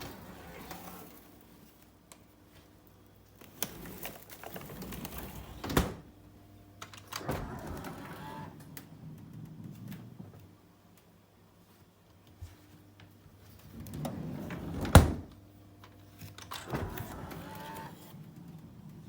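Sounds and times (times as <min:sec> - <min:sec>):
refrigerator mechanism motor whirring: 0:03.4 - 0:06.2, 0:06.8 - 0:10.6, 0:13.6 - 0:15.4, 0:16.1 - 0:19.0.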